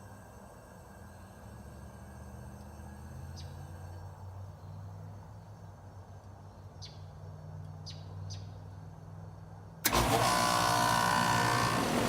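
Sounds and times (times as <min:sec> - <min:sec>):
heat pump hum: 0:09.8 - 0:12.0.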